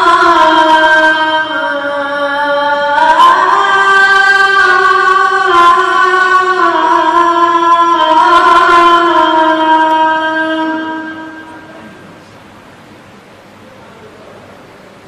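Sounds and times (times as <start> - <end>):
child reciting melodically: 0.0 - 11.9.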